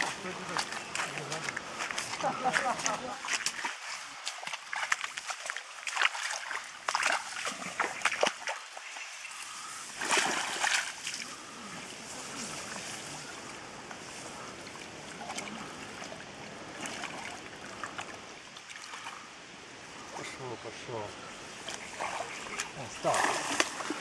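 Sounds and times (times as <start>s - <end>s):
water splashing and sloshing: 0.0s - 24.0s
water trickling: 0.0s - 24.0s
loud splash: 10.0s - 11.2s, 23.0s - 24.0s.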